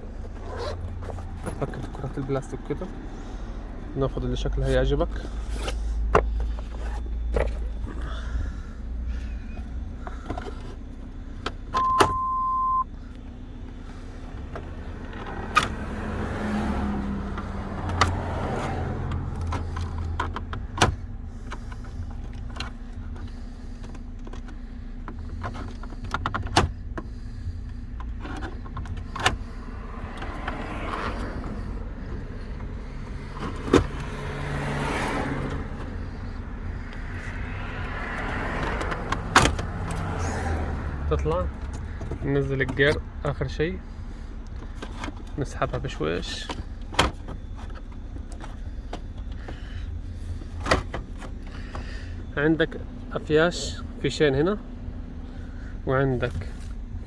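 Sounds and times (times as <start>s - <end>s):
steady beep: 11.8s - 12.9s.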